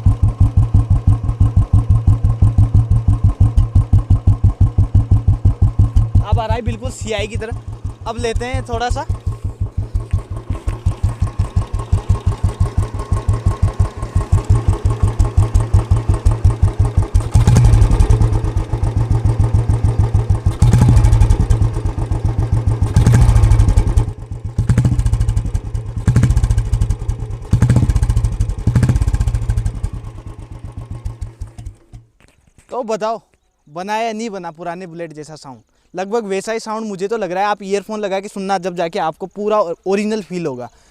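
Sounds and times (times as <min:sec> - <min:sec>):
engine revving in blips: 0:00.0 - 0:32.1
motorcycle exhaust idling: 0:00.0 - 0:32.2.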